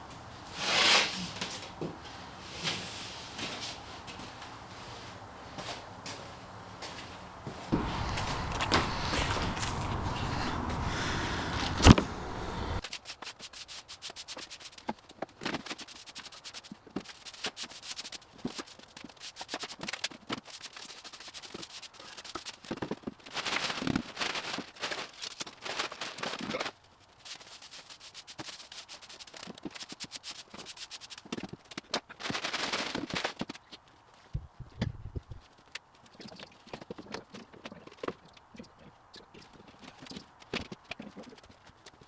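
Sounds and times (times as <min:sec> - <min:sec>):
broom sweeping sawdust: 0:07.7 - 0:12.8.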